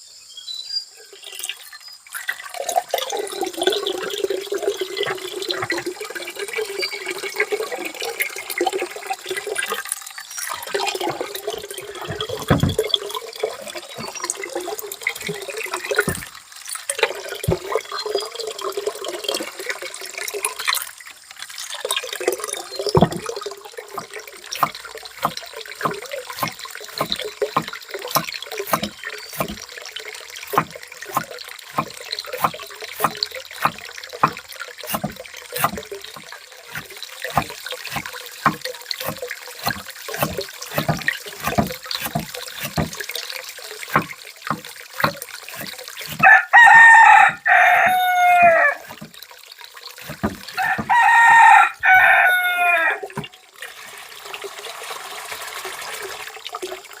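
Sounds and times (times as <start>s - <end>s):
water splashing and dripping: 1.1s - 57.0s
rooster crowing: 46.2s - 49.0s, 50.6s - 53.0s.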